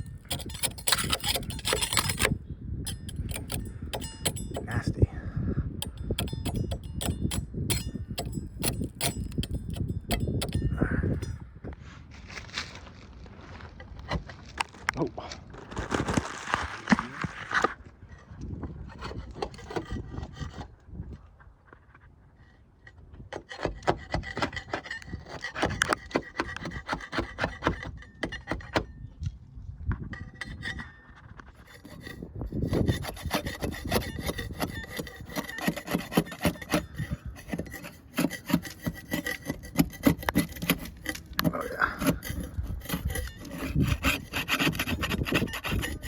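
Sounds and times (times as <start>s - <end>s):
sandpaper rubbing on hull: 31.6s - 46.0s.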